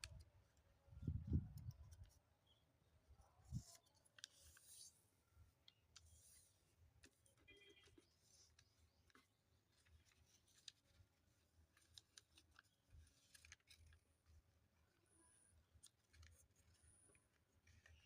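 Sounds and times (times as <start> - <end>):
paper crackling by hand: 5.7 - 18.0.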